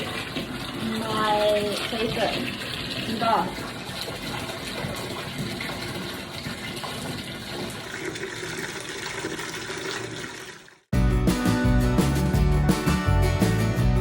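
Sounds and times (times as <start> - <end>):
tap running into a bath: 0.0 - 10.8
music: 10.9 - 14.0.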